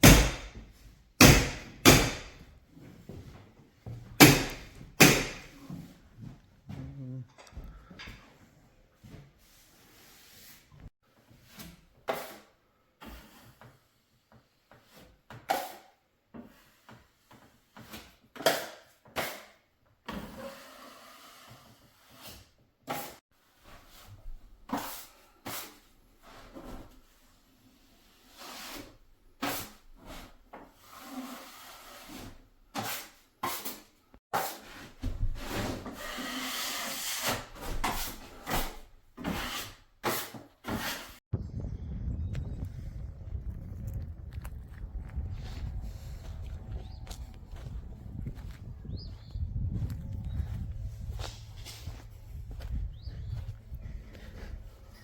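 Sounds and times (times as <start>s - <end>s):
steady rumbling noise: 41.4s - 48.8s, 49.6s - 55.0s.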